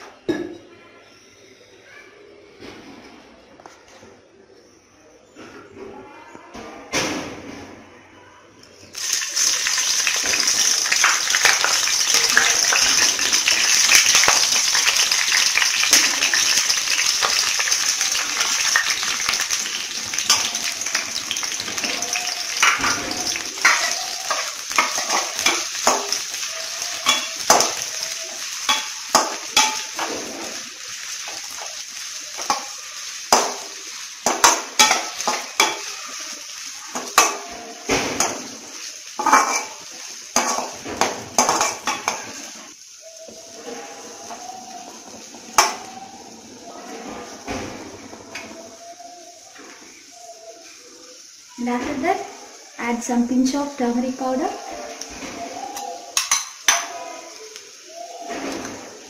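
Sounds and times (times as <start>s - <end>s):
chilies sizzling in hot oil: 8.8s - 59.0s
spatula clinking and scraping pan: 9.0s - 42.7s, 43.6s - 47.4s, 55.7s - 57.4s.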